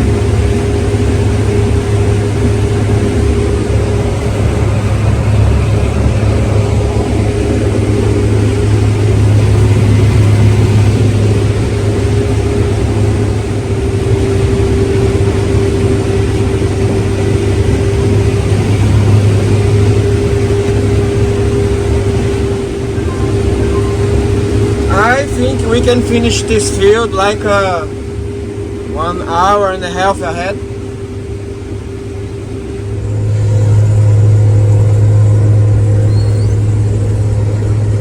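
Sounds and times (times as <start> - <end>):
diesel engine drone: 0.0 - 38.0
steady hum: 0.0 - 38.0.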